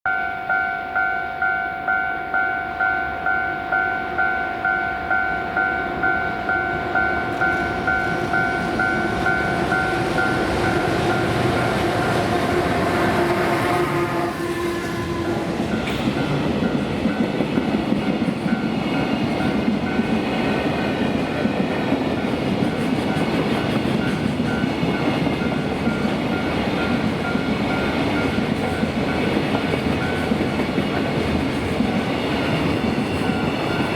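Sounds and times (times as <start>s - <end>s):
level crossing bell ringing: 0.1s - 11.8s
electric locomotive passing: 0.1s - 33.9s
train wagons clickety-clack: 6.5s - 33.9s.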